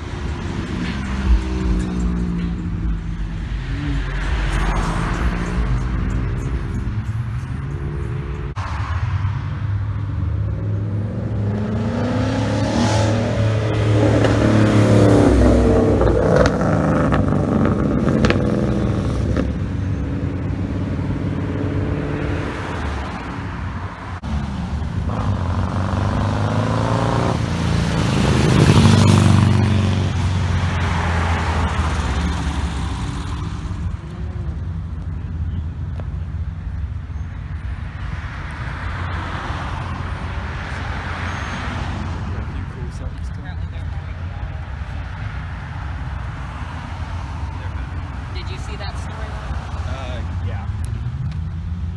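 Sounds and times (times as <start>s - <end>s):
low engine drone: 0.0s - 39.0s
car engines revving past: 0.0s - 51.9s.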